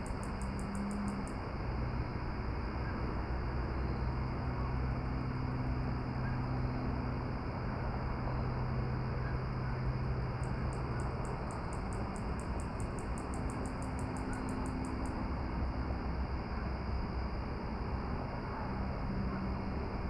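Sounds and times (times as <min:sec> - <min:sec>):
insect chirping: 0:00.0 - 0:02.1, 0:02.8 - 0:06.9, 0:09.6 - 0:15.6.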